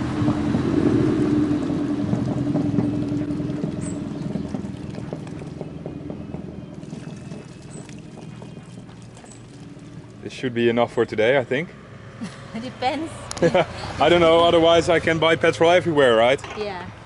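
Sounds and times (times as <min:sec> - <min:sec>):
petrol glugging into tank: 0:01.5 - 0:10.3.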